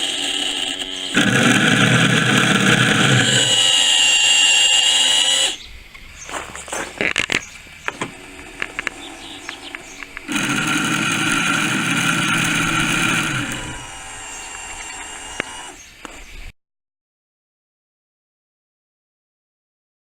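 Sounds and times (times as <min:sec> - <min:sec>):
small outboard motor whining: 0:00.0 - 0:05.6, 0:07.2 - 0:16.0
clicks: 0:06.3 - 0:16.2.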